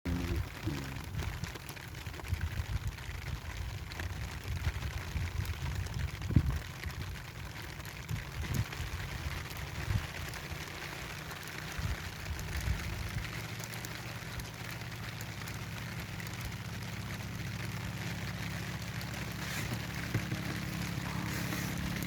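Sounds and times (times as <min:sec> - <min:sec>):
steady rain falling: 0:00.1 - 0:22.0
low rumble: 0:15.4 - 0:22.0.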